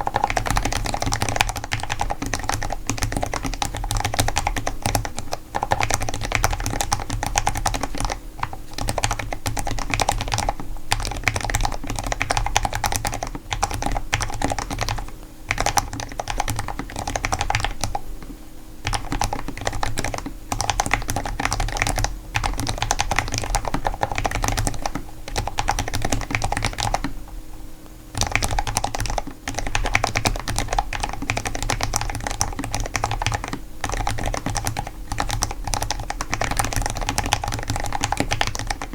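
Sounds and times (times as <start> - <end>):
mechanical keyboard typing: 0.0 - 18.0, 18.8 - 27.2, 28.2 - 38.9.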